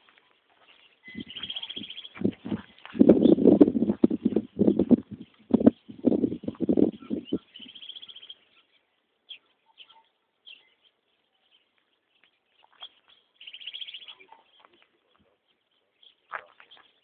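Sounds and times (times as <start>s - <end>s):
birds chirping: 0.0s - 17.0s
bird trill: 1.0s - 3.6s, 6.4s - 11.0s, 12.6s - 14.7s.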